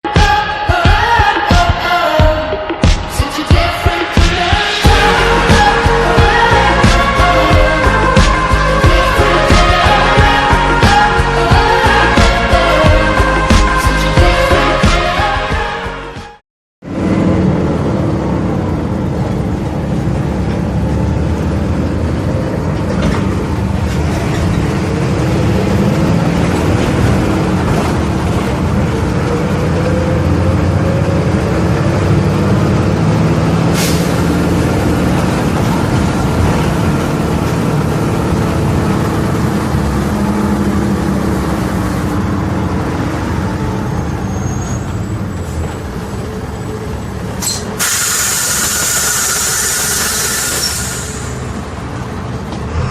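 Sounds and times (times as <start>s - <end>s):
bus engine running: 0.0s - 52.9s
air hiss: 47.4s - 51.6s.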